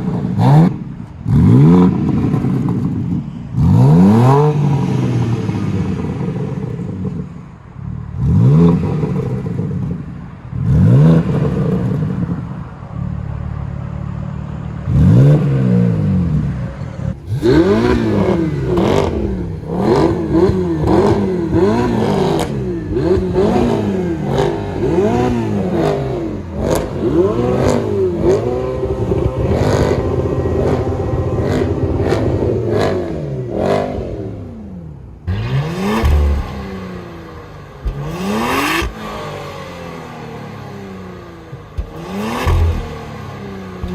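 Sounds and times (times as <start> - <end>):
car engine revving: 0.0 - 43.9
exhaust pops: 35.3 - 39.5, 41.5 - 43.9.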